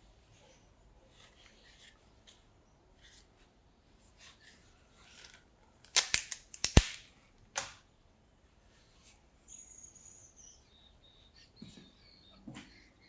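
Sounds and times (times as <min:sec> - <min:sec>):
sharp clicks and snaps: 0:05.8 - 0:07.8.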